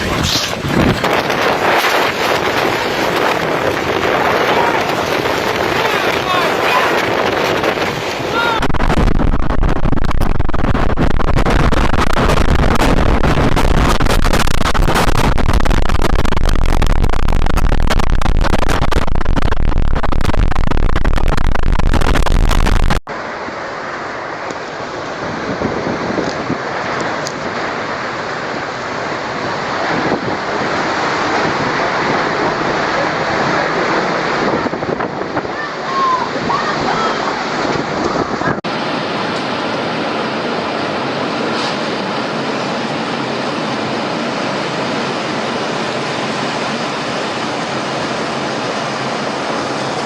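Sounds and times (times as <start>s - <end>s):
strong wind buffeting microphone: 0.0s - 23.0s, 24.5s - 50.0s.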